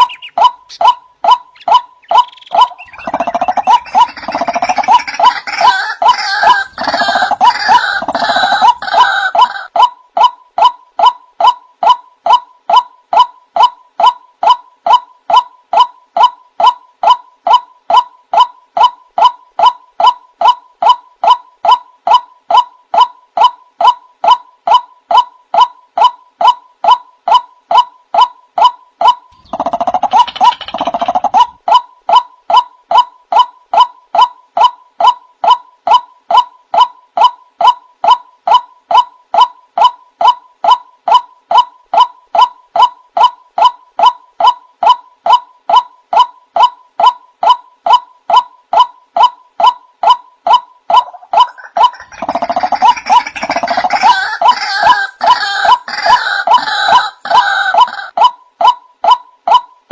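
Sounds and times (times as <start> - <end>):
waterhen calling: 0.0 - 9.7, 50.9 - 58.1.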